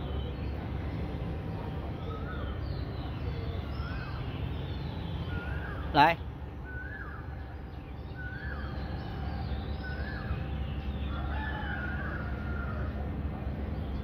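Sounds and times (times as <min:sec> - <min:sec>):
low background hum: 0:00.0 - 0:14.0
bird calls: 0:02.0 - 0:13.1.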